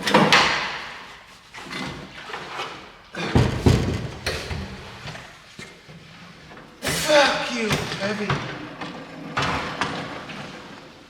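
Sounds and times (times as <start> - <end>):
heavy thud and clatter: 3.3 - 4.8.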